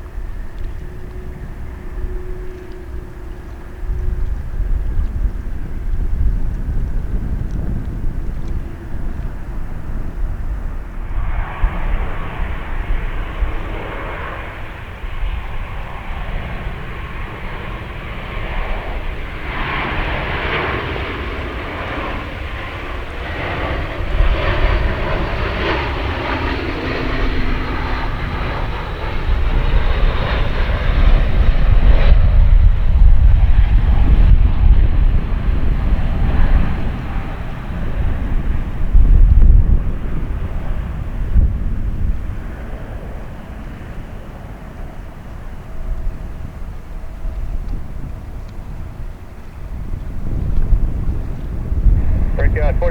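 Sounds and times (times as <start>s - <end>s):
jet engines rumbling: 0.0s - 52.9s
wind buffeting microphone: 0.0s - 52.9s.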